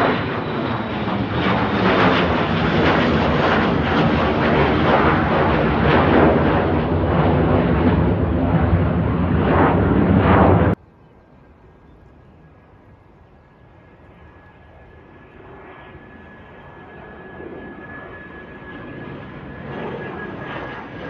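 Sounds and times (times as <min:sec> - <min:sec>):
airliner engine rumble at takeoff: 0:00.0 - 0:21.0.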